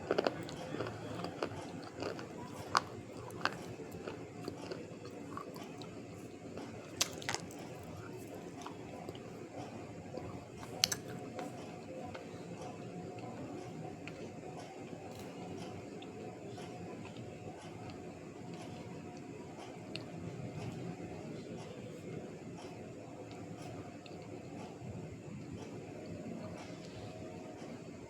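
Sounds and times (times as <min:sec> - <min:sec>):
person chewing crunchy food: 0:00.0 - 0:09.4.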